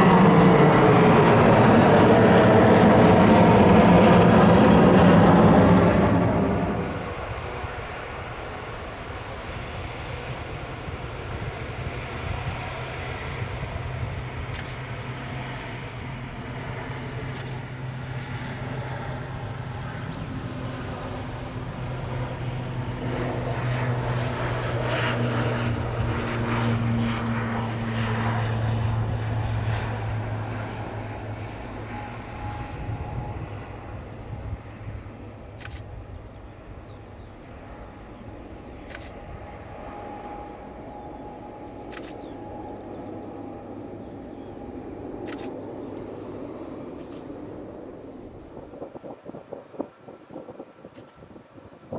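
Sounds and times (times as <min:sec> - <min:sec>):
turboprop airliner drone: 0:00.0 - 0:51.9
short sharp clicks: 0:41.9 - 0:42.2.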